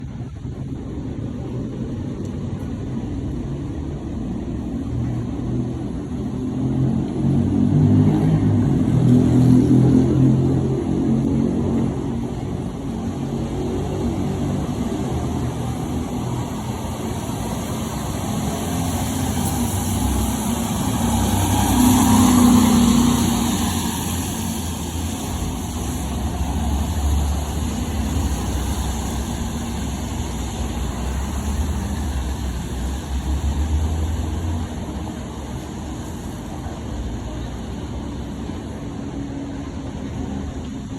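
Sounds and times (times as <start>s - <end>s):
fire engine diesel engine humming: 10.6s - 40.9s.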